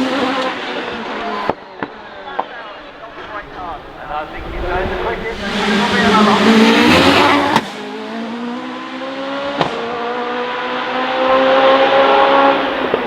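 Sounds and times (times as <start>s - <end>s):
racing car engine accelerating: 0.0s - 13.0s.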